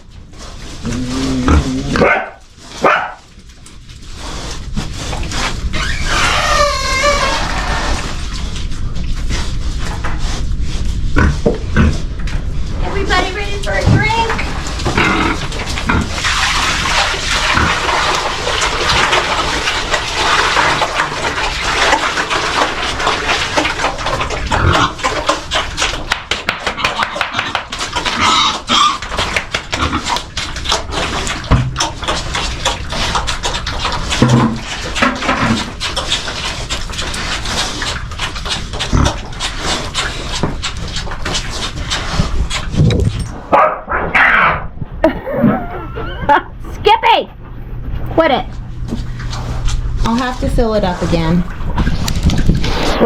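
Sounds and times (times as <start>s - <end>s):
pigs grunting and squealing: 0.6s - 2.4s, 5.3s - 8.5s, 13.7s - 43.3s, 43.9s - 46.6s
water running from hose: 13.0s - 26.0s.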